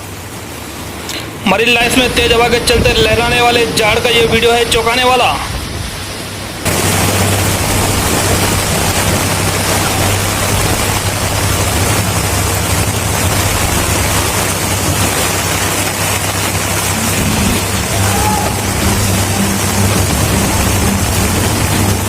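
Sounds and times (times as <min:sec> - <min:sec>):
rain: 0:00.0 - 0:22.0
strong wind: 0:00.0 - 0:22.0
low drone: 0:06.6 - 0:22.0.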